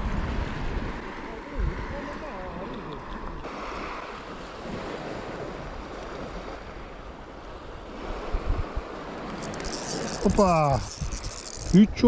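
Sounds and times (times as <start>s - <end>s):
wind buffeting microphone: 0.0s - 2.8s, 7.8s - 12.0s
sea waves washing: 3.4s - 12.0s.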